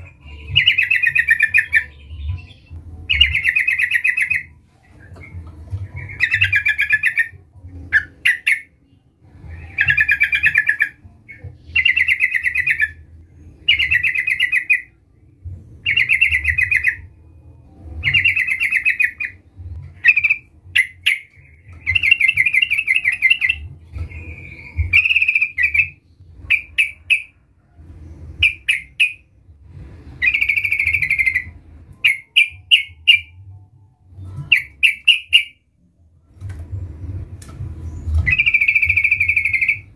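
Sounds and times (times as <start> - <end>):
faint low hum: 0.0 - 39.9
bird singing bubbly phrases: 5.9 - 8.8, 9.8 - 13.0.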